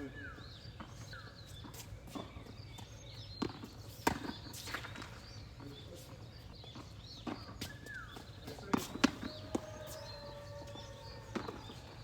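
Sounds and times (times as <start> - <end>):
racket striking ball: 11.3 - 11.8
tennis ball bouncing: 11.3 - 11.9.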